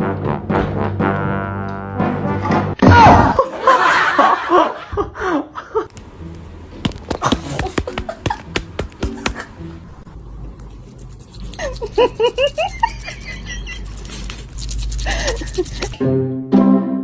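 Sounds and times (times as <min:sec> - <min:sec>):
person laughing loudly: 0:07.2 - 0:09.6, 0:11.6 - 0:14.1, 0:15.0 - 0:16.0.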